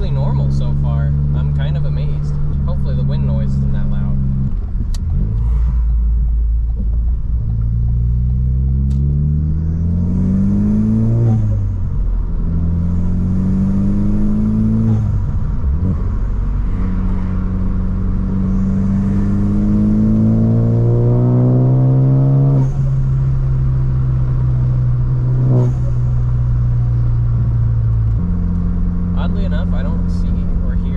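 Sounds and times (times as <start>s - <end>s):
car engine accelerating: 0.0s - 30.9s.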